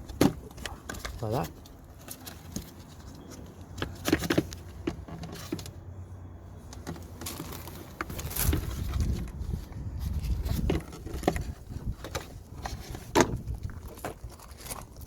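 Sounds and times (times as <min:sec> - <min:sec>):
plastic knocks clicks and scrapes: 0:00.0 - 0:05.8, 0:10.1 - 0:15.0.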